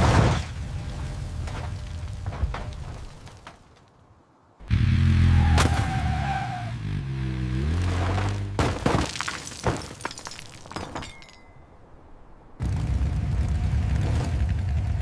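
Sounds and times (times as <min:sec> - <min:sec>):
crash impact: 0:00.0 - 0:03.7
shattering and clattering debris: 0:00.0 - 0:03.9, 0:08.0 - 0:11.9
vehicle engine revving: 0:04.6 - 0:08.6, 0:12.6 - 0:15.0.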